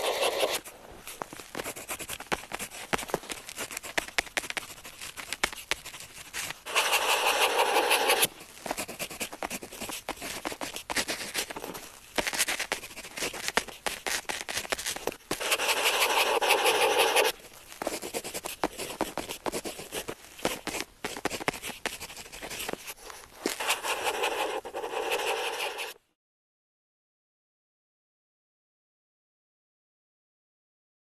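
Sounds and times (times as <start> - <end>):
pen scratching on paper: 0.0 - 0.7, 1.5 - 11.6, 12.2 - 26.0.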